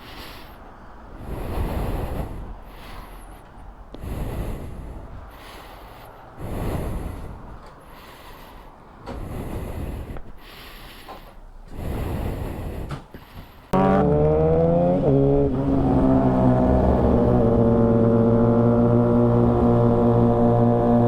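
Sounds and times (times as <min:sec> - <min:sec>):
heavy breathing: 0:00.0 - 0:13.8.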